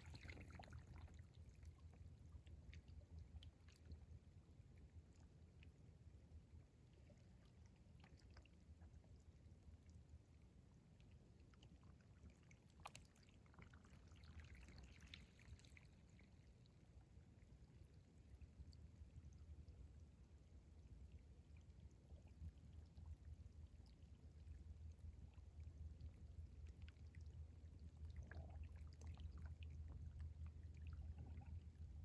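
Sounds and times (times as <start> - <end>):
low wash of water: 0.0 - 4.0
water trickling and dripping: 0.0 - 32.0.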